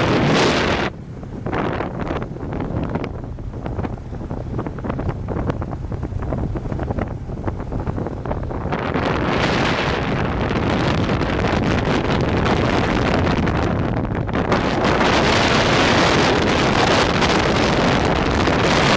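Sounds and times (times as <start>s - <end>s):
motorbike engine and road rumble: 0.0s - 18.9s
wind buffeting microphone: 0.0s - 18.9s.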